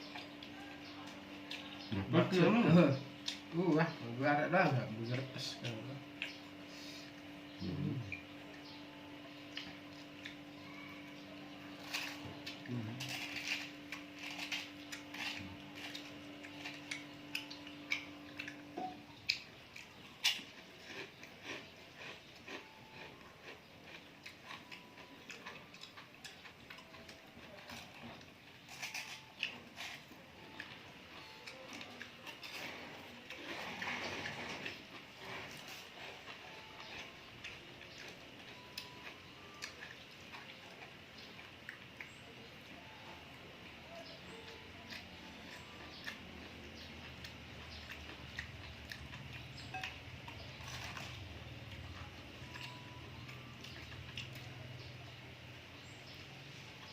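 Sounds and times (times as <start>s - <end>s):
chewing with small crackles: 0.0s - 4.0s, 4.8s - 56.9s.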